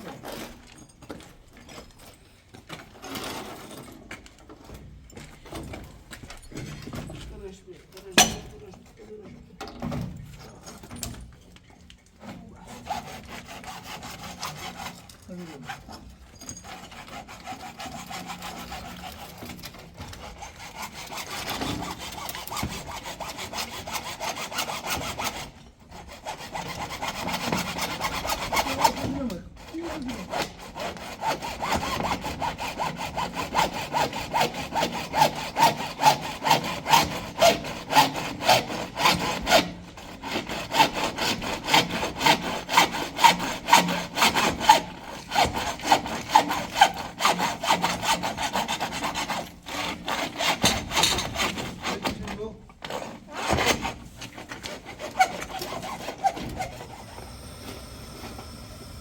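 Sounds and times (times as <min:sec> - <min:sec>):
rasping strokes on wood: 0:12.2 - 0:59.0.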